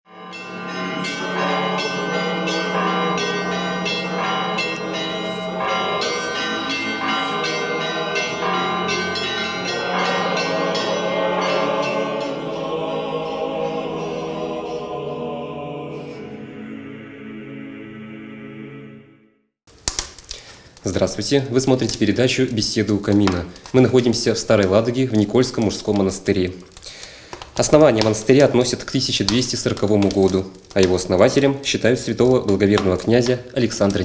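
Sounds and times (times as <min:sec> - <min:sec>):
church bells ringing: 0:00.1 - 0:15.2.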